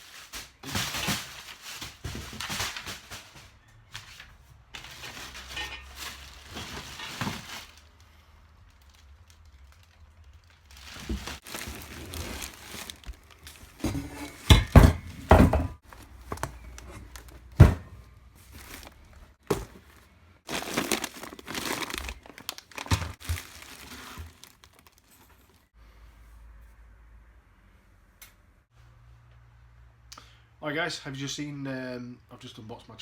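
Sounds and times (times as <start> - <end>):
plastic and cardboard crinkling: 0.0 - 25.7.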